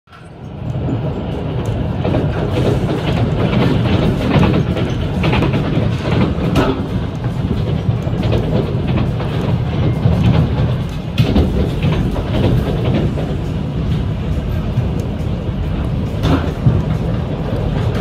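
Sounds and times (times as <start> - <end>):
train interior rumble: 0.1 - 18.0
wheels clicking over rails: 0.1 - 18.0.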